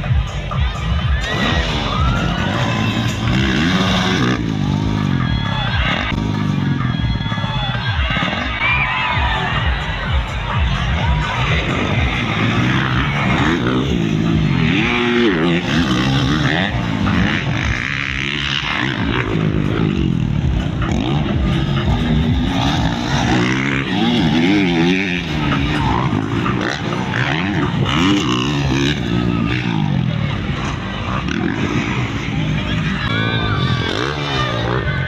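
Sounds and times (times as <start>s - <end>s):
dirt bike engines racing: 0.0s - 35.0s.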